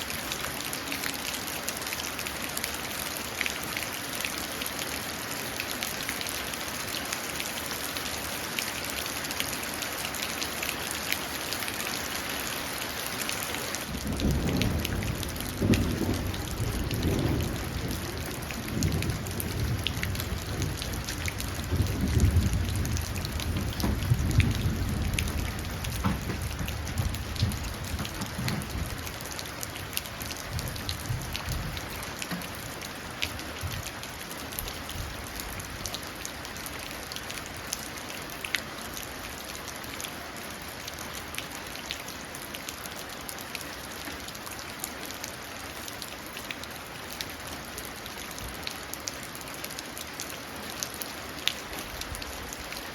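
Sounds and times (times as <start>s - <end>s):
rain dripping into puddle: 0.0s - 52.9s
thunder rumbling: 13.9s - 32.0s.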